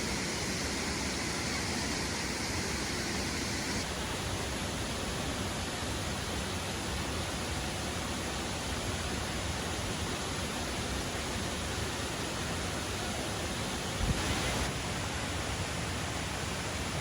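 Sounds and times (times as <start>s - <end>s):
waterfall roaring: 0.0s - 17.0s
brief low thump: 14.0s - 14.4s.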